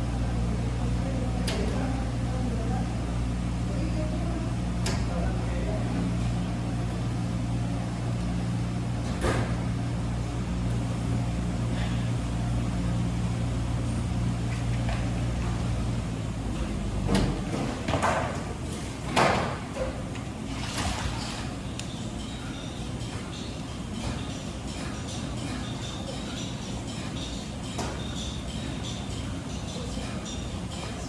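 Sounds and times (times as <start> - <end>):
washing machine motor humming: 0.0 - 31.0.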